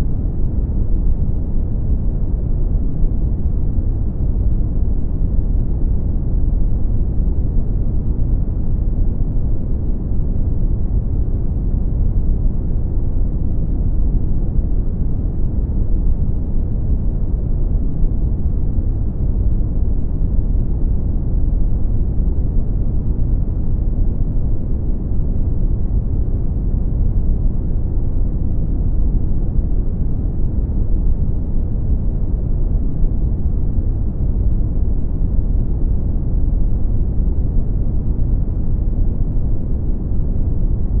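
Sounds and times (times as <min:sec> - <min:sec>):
brown noise rumbling hiss: 0:00.0 - 0:41.0.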